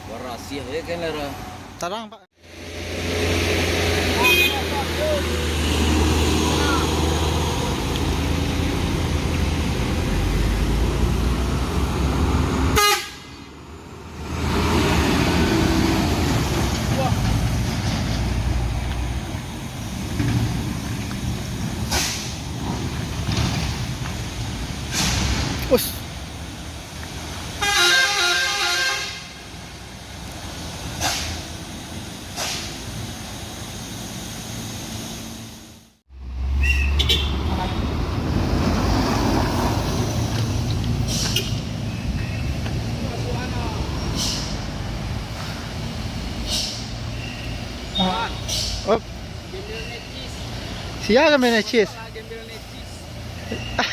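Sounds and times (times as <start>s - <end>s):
road noise: 0.0s - 53.9s
heavy truck engine labouring: 2.4s - 53.9s
truck horn toots: 4.1s - 4.8s, 12.7s - 13.4s, 27.6s - 29.4s, 36.6s - 37.8s.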